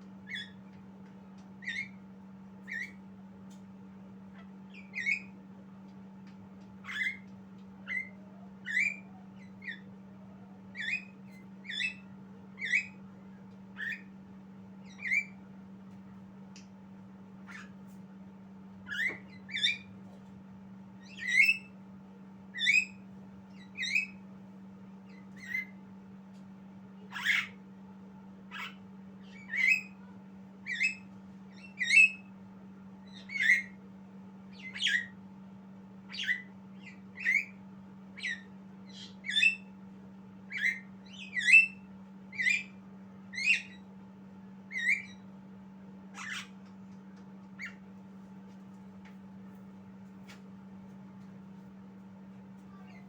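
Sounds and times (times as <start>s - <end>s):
steady low hum: 0.0s - 53.0s
bird squawking calls: 6.8s - 7.2s, 7.9s - 9.9s, 27.1s - 27.6s, 33.1s - 33.8s, 34.6s - 35.1s, 46.1s - 46.6s.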